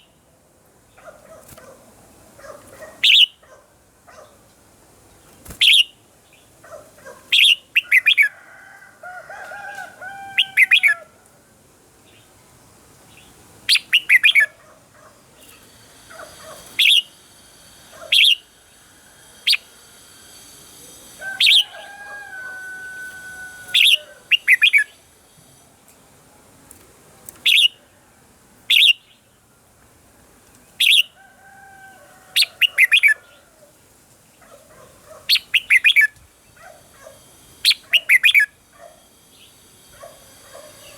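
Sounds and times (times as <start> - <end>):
birds chirping sharply: 2.6 - 3.4, 13.1 - 14.6, 15.4 - 17.2, 21.3 - 25.0, 35.2 - 36.1
whistled bird warbles: 16.2 - 17.2, 18.0 - 18.5, 21.2 - 25.0, 27.5 - 27.8, 35.3 - 36.2, 37.7 - 38.6.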